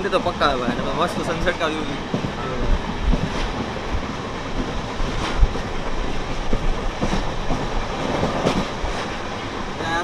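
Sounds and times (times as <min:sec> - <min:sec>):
train rumbling along track: 0:00.0 - 0:10.0.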